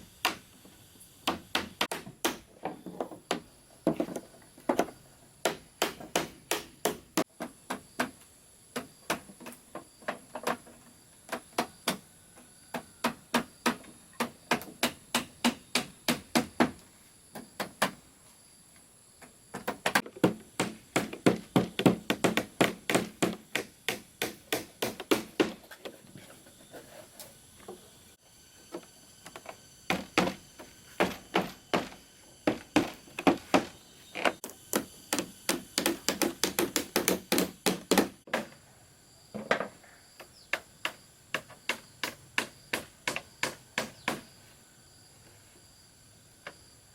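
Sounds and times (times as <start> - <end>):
hammer striking wood: 0.2 - 0.4, 1.2 - 4.1, 4.7 - 8.2, 12.7 - 16.8, 19.6 - 25.7, 29.9 - 30.4, 31.0 - 33.8, 34.7 - 38.5, 40.5 - 44.3.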